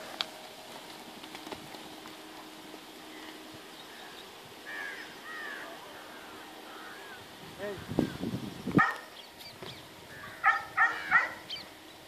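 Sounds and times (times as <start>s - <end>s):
faint background hiss: 0.0s - 12.0s
bird chirping: 3.1s - 7.2s, 7.8s - 12.0s.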